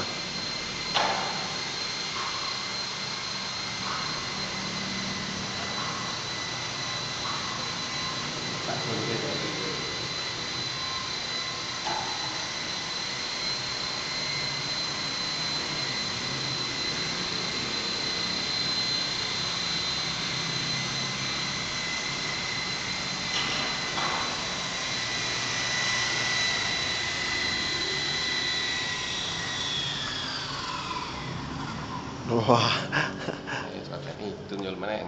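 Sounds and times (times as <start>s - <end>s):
model helicopter whine: 0.0s - 35.0s.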